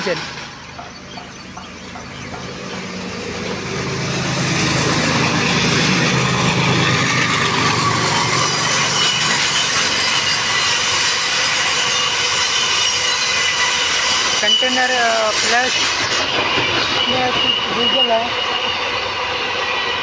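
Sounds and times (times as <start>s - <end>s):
diesel locomotive engine drone: 0.0s - 20.0s
rail clatter: 0.0s - 20.0s
train wagons rumbling: 0.0s - 20.0s
wheel squeal: 5.3s - 20.0s.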